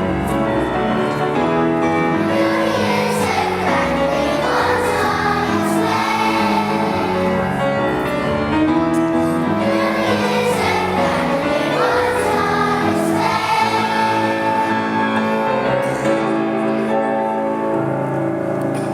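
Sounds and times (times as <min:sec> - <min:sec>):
choir singing in harmony: 0:00.0 - 0:17.0.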